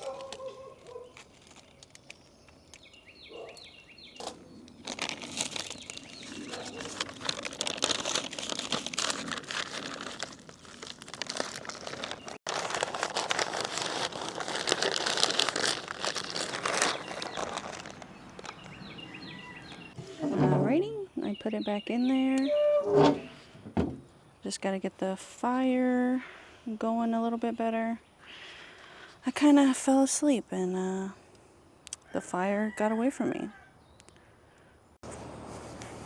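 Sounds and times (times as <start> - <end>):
wrapping crinkling: 0.0 - 3.0, 4.2 - 19.9.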